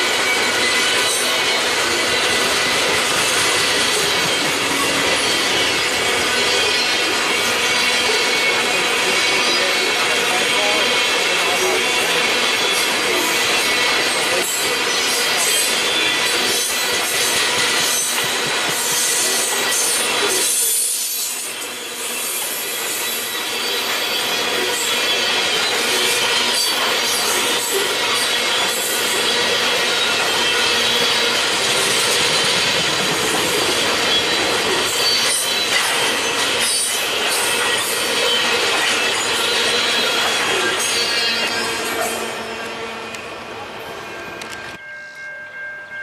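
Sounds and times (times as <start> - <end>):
freight train wheels rushing on rail: 0.0 - 44.8.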